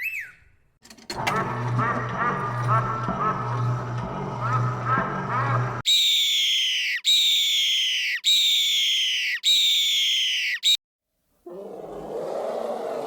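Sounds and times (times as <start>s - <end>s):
low buzzing: 1.2s - 5.8s
bird of prey screaming: 6.1s - 10.8s.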